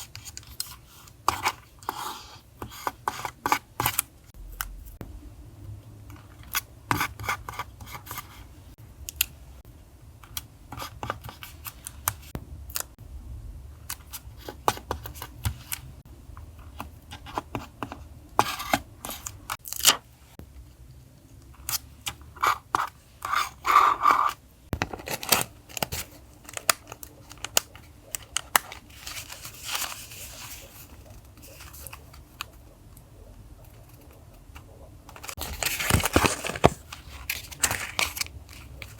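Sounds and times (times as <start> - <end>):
steady low hum: 4.2 - 24.8
paper and stickers handled: 10.3 - 12.9, 13.9 - 15.9, 16.6 - 20.1, 21.4 - 38.9.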